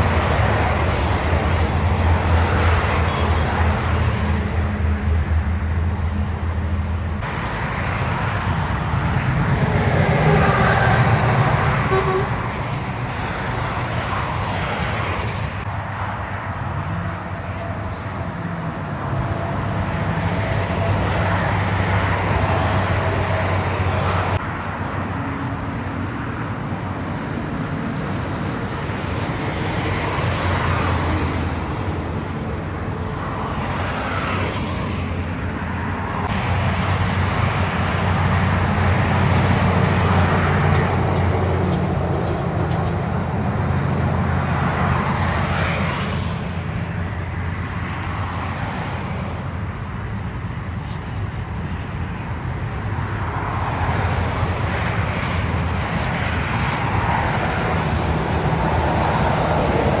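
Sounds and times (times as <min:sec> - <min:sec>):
tyre and road noise: 0:00.0 - 1:00.0
diesel truck engine rumble: 0:36.0 - 0:48.3.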